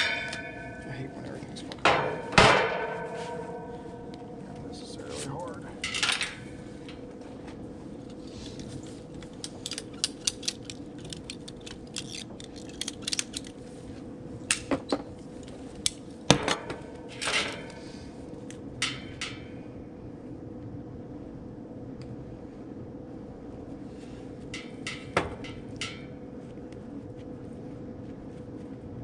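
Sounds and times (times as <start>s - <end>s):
faint steady hum: 0.0s - 29.0s
metallic clicks of hand tools: 9.4s - 13.5s.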